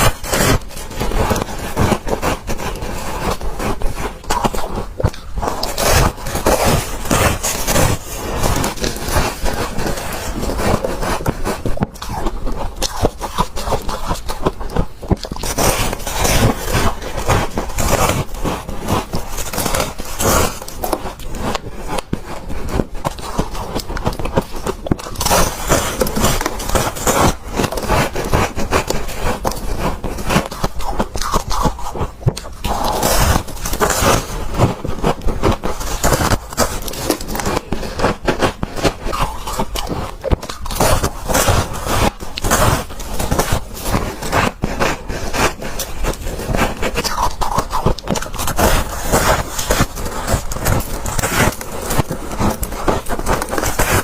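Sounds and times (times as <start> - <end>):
chewing crunchy frost: 0.0 - 54.0.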